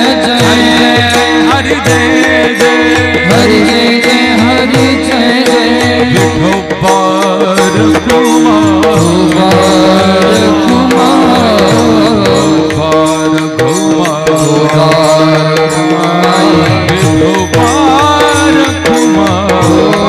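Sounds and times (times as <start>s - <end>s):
drum strokes: 0.0s - 20.0s.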